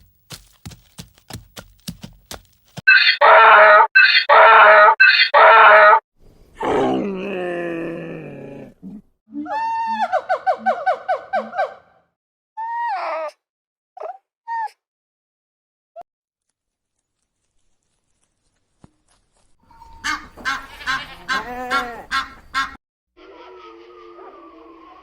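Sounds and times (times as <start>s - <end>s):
quavering pulsing animal call: 2.9s - 6.0s, 19.7s - 25.0s
long falling animal call: 23.2s - 25.0s.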